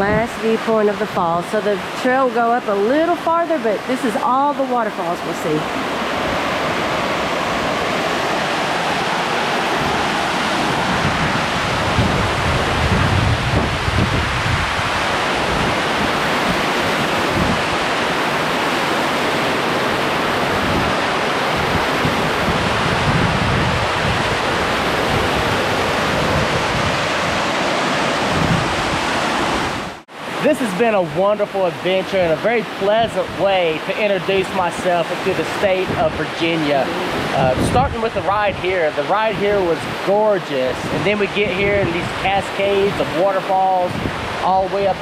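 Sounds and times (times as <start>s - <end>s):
wind rumbling on microphone: 0.0s - 30.4s, 32.0s - 45.0s
waterfall roaring: 0.0s - 45.0s.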